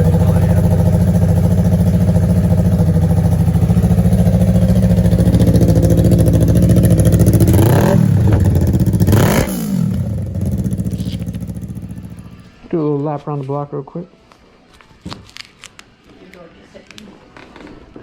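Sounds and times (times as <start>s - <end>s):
engine revving: 0.0s - 12.5s
motorcycle engine idling: 0.0s - 12.6s.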